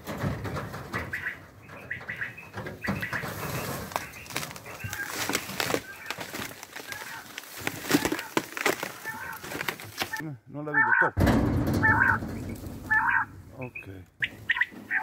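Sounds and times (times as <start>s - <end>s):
rustling: 0.0s - 10.2s, 11.2s - 15.0s
knocks on wire fence: 11.2s - 13.3s.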